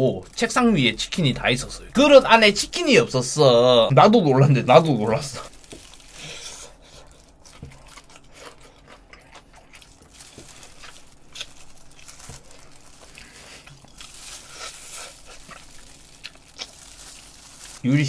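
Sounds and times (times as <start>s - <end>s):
crisp crunches of chewing: 5.3s - 18.0s.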